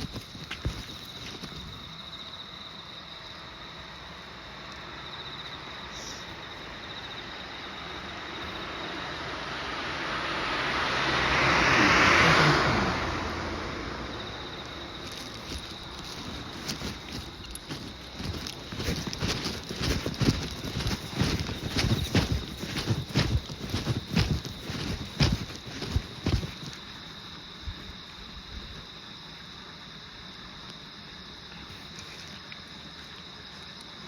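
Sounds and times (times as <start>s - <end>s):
insect trill: 0.0s - 34.0s
road vehicle passing by: 8.2s - 16.1s.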